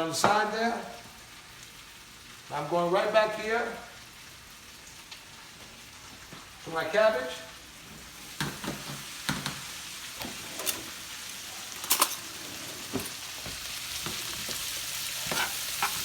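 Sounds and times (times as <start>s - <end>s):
food sizzling in a frying pan: 0.0s - 16.0s
utensil scraping a pan: 15.2s - 16.0s.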